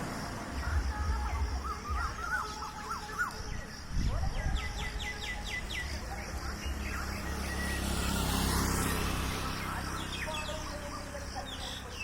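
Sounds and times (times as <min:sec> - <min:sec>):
vehicle passing by: 0:00.0 - 0:01.5, 0:04.8 - 0:12.0
birds chirping: 0:00.0 - 0:12.0.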